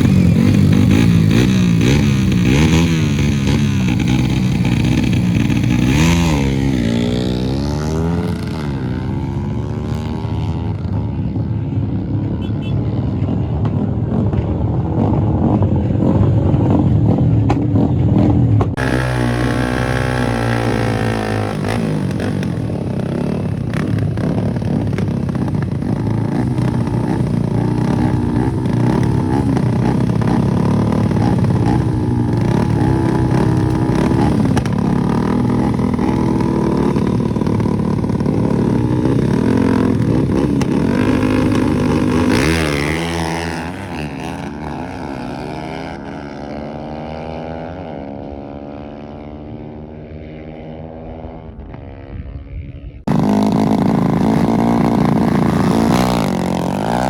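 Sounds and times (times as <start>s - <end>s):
motorcycle engines at full throttle: 0.0s - 57.0s.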